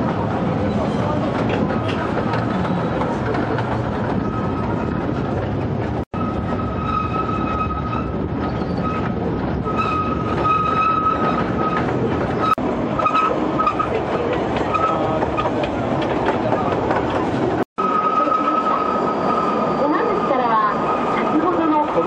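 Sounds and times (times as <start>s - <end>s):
train wheels rumbling on rails: 0.0s - 22.0s
high wheel squeal: 6.2s - 14.0s, 17.8s - 22.0s.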